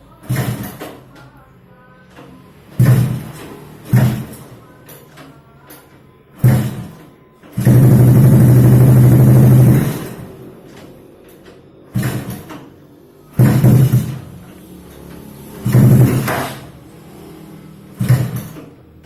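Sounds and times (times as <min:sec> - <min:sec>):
motorcycle engine revving: 0:07.6 - 0:10.6, 0:13.4 - 0:18.8.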